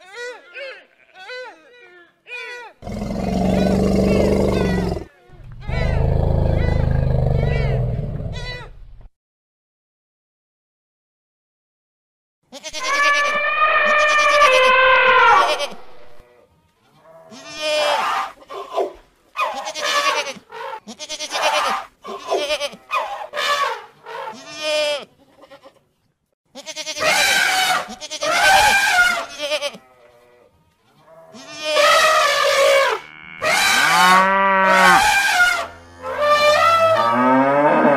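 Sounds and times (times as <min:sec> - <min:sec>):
goats bleating: 0:00.0 - 0:02.7, 0:03.5 - 0:08.7, 0:12.5 - 0:18.4, 0:19.4 - 0:23.0, 0:24.3 - 0:25.8, 0:26.5 - 0:37.3.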